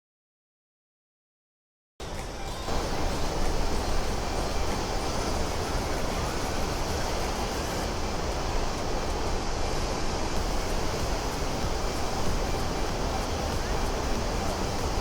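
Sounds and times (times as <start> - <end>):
waterfall roaring: 2.0 - 15.0.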